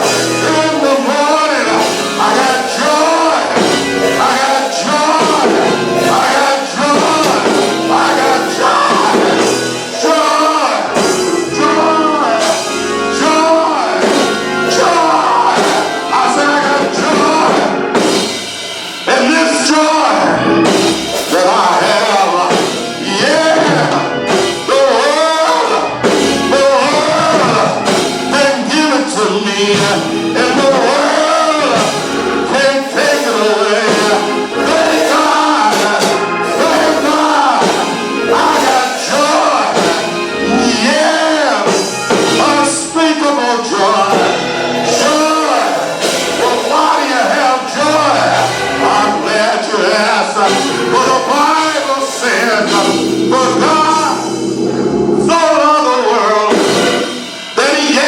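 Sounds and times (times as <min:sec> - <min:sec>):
gospel singing with instruments: 0:00.0 - 0:58.0.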